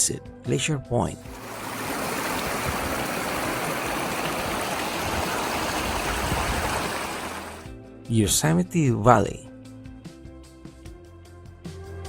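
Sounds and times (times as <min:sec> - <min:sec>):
rushing water: 0:01.2 - 0:07.7.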